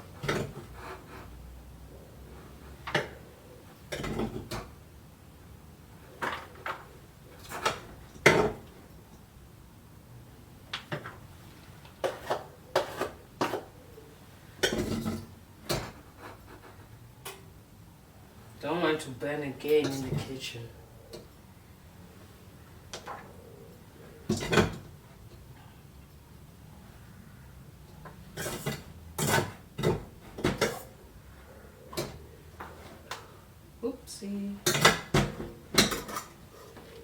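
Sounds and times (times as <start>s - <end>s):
pots and utensils clattering: 0.0s - 1.3s, 2.7s - 4.8s, 6.2s - 8.8s, 11.9s - 13.8s, 14.6s - 17.5s, 24.2s - 25.5s, 27.9s - 31.0s, 34.6s - 37.0s
spoon scraping a pan: 12.0s - 13.8s, 28.2s - 31.0s.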